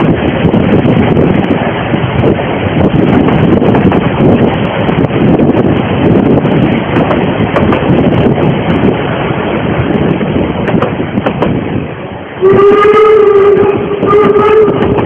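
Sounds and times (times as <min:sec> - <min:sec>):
steam train rumbling: 0:00.0 - 0:15.0
steam locomotive whistle: 0:12.4 - 0:15.0.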